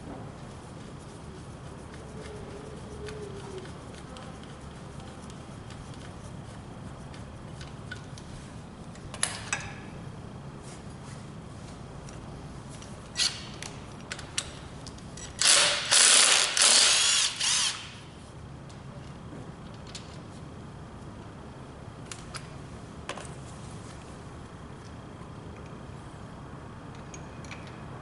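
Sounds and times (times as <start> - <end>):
low background hum: 0.0 - 28.0
loud noisy tool bursts: 15.4 - 18.0.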